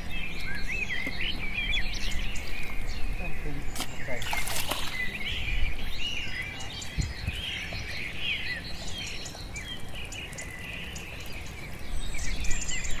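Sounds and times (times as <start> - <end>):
birds chirping and singing: 0.0 - 13.0.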